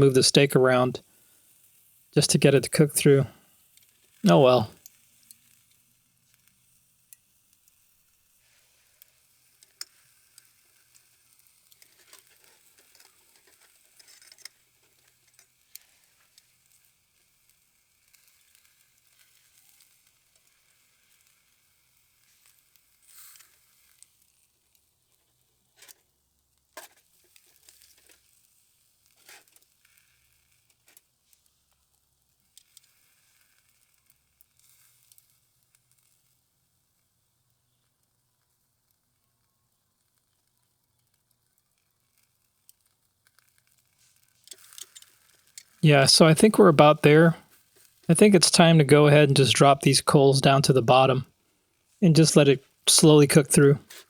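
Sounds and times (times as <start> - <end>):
steak sizzling in a pan: 4.8 - 24.7, 42.8 - 45.8.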